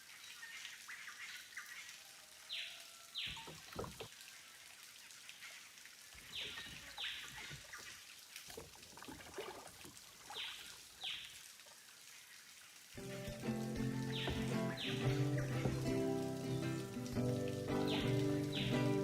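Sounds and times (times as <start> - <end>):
water trickling and dripping: 0.0 - 19.0
background music: 13.0 - 19.0
bird calls: 13.0 - 19.0.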